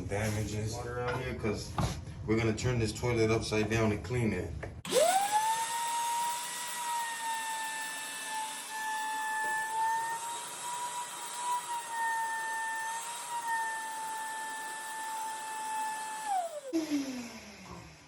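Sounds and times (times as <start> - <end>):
wet dry vacuum motor whine: 4.9 - 18.0.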